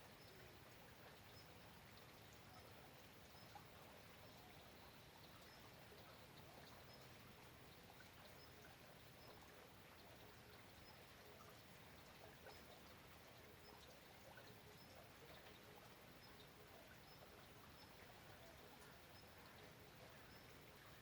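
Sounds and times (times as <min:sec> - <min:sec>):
faint steady rain: 0:00.0 - 0:21.0.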